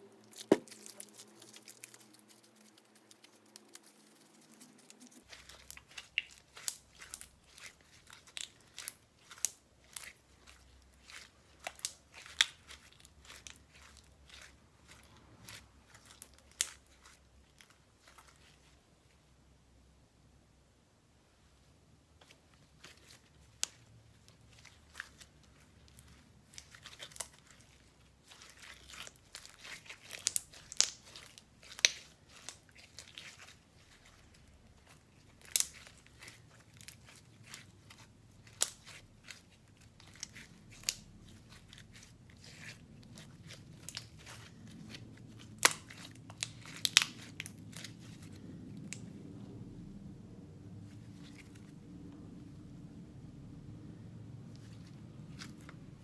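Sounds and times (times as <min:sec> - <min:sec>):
slime popping: 0:00.2 - 0:02.4, 0:04.8 - 0:17.2, 0:34.8 - 0:49.1
sticky slime clicks and crackles: 0:04.8 - 0:18.2, 0:24.5 - 0:49.1.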